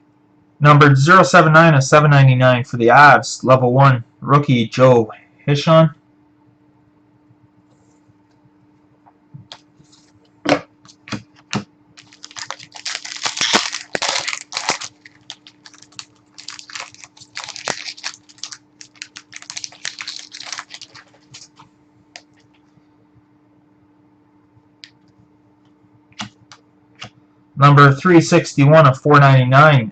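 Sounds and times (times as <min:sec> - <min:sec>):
crinkling of pack wrappers: 0:11.4 - 0:22.4.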